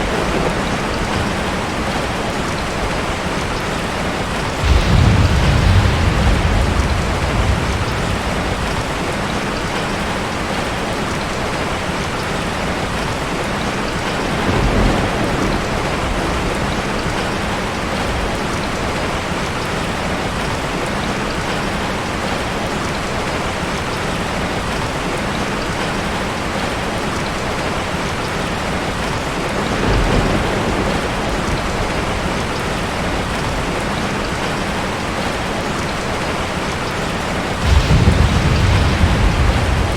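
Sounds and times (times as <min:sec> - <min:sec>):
thunder rolling: 0:00.0 - 0:10.6, 0:14.1 - 0:18.4, 0:29.6 - 0:33.8, 0:37.6 - 0:39.9
heavy rain falling: 0:00.0 - 0:39.9.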